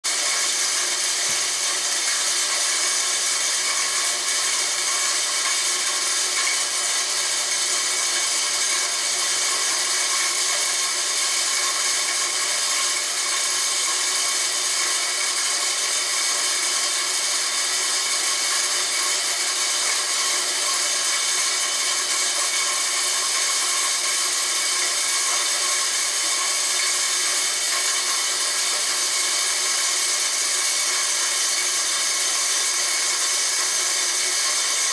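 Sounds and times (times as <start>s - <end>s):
electric grinder whining and grinding: 0.1s - 34.9s.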